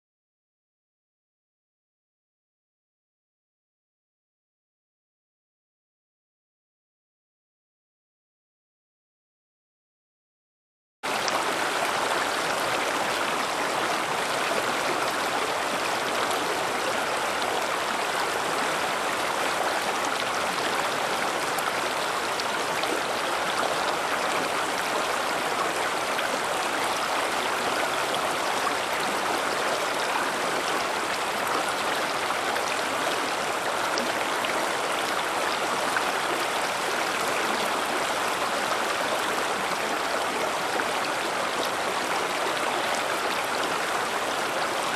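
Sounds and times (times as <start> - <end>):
river water rushing over rocks: 11.1 - 44.9.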